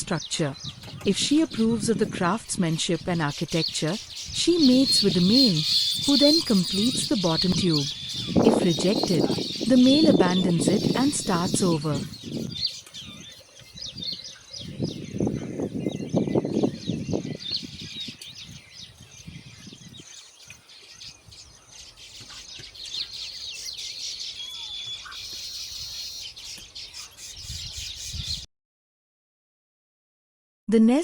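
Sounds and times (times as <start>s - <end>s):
small birds chirping and twittering: 0.0s - 28.5s.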